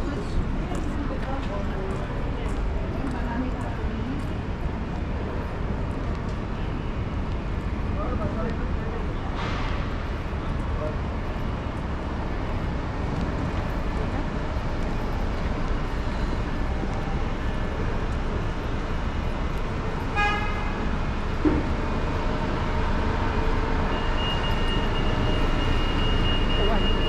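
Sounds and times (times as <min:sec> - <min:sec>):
road traffic noise: 0:00.0 - 0:27.0
vehicle horn toot: 0:20.1 - 0:20.8.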